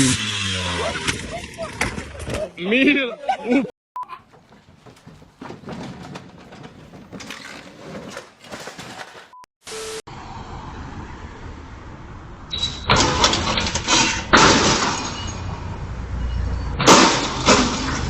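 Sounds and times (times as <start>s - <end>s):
glass breaking: 12.9s - 15.4s, 16.8s - 18.0s
loud crash impacts: 12.9s - 15.4s, 16.8s - 18.0s.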